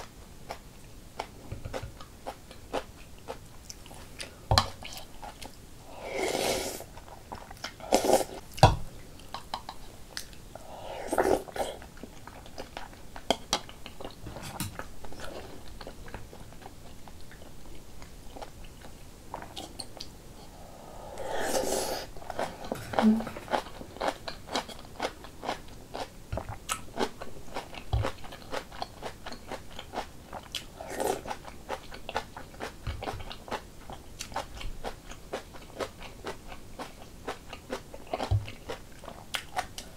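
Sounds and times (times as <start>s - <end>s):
close chewing with wet clicks: 23.5s - 39.9s.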